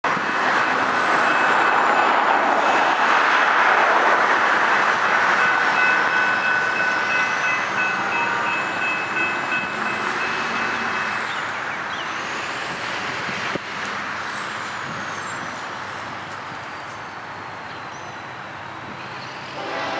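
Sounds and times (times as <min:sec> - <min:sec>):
freight train rolling past: 0:00.0 - 0:16.1, 0:17.6 - 0:19.9.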